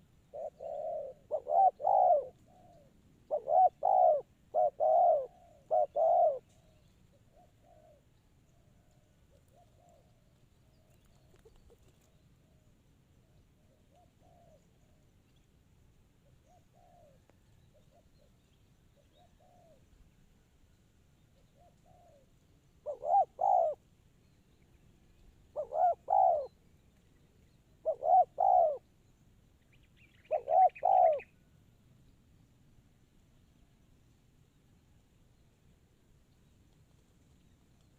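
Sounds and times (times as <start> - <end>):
doves cooing: 0.0 - 10.3, 13.6 - 15.1, 21.6 - 23.8, 25.5 - 26.6, 27.8 - 28.8, 30.3 - 31.3.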